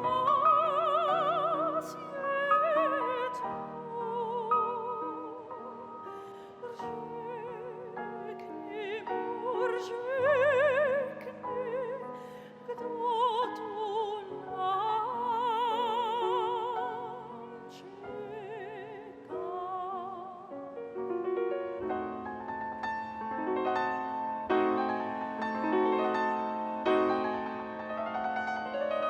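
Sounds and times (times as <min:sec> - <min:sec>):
operatic singing: 0:00.0 - 0:20.4
piano accompaniment: 0:00.0 - 0:29.0.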